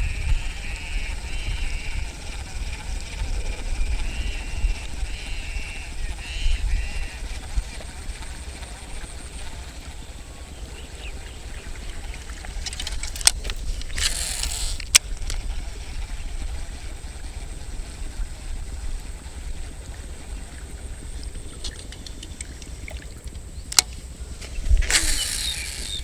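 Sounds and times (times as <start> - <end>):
wind buffeting microphone: 0.0 - 26.0
sharp click: 12.6 - 15.4, 23.7 - 24.0, 24.8 - 26.0.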